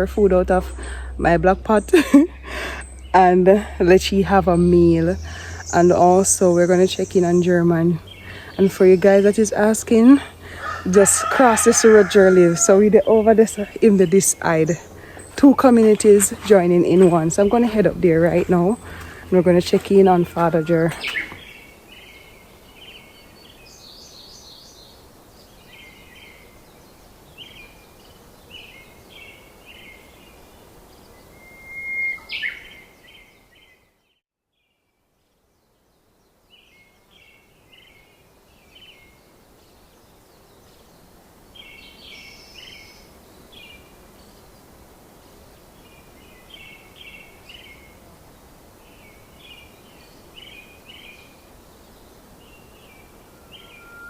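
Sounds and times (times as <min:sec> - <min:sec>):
steady outdoor hiss: 0:00.0 - 0:54.0
wild birds chirping: 0:00.0 - 0:54.0
sharp bird call: 0:52.6 - 0:54.0.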